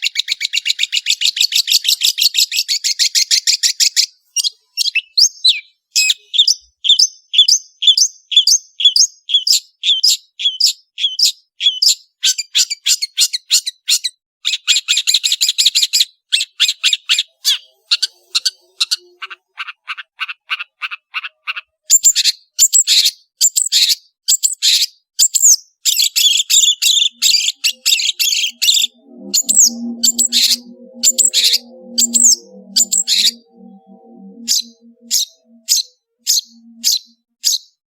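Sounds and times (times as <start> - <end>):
bird singing high notes: 17.3 - 19.8, 26.2 - 37.6.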